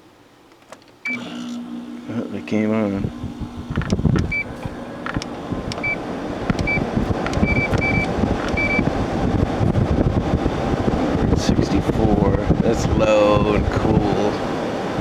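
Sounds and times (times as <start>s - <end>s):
air conditioner fan blowing: 0.0s - 15.0s
control panel clicks: 3.7s - 8.8s
short electronic beeps: 7.4s - 8.8s.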